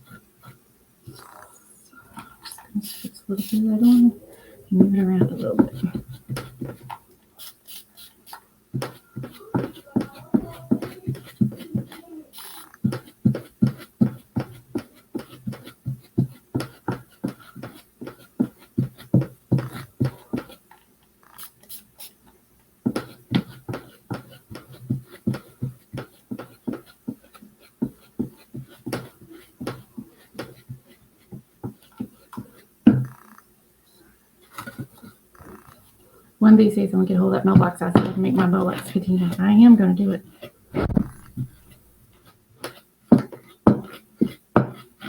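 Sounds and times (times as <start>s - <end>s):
paintbrush dabbing soft taps: 2.1s - 20.6s.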